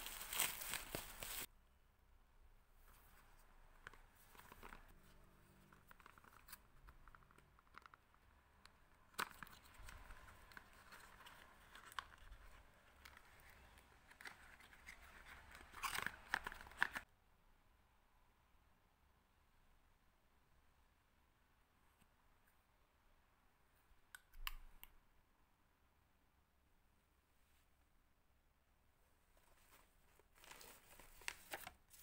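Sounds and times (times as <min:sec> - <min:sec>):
packaging tearing and crinkling: 0:00.0 - 0:01.5.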